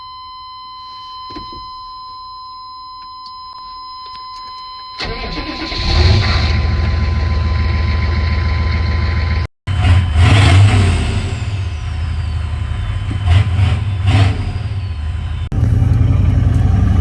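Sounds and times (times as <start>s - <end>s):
diesel engine cranking and idling: 5.0s - 17.0s.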